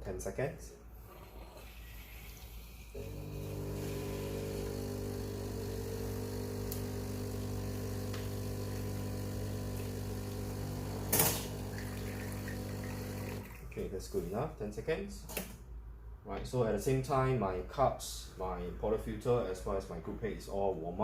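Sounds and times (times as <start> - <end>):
espresso machine pump humming: 1.4 - 13.6.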